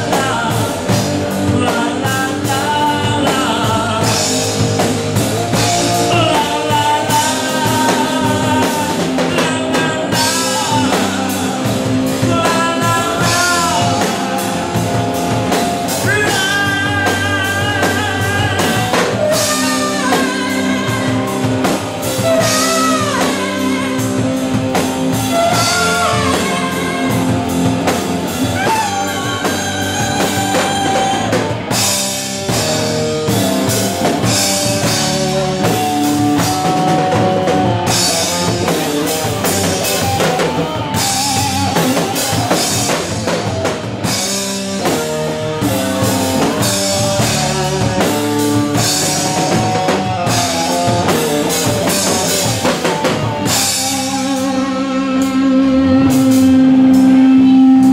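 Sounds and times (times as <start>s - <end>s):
rock music with drums and guitar: 0.0s - 57.9s.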